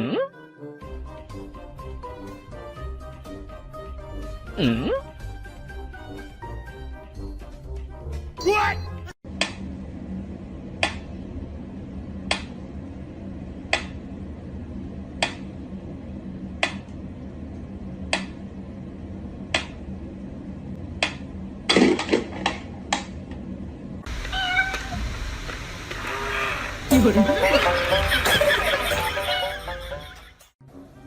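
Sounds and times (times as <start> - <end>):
steady low hum: 9.2 - 30.3.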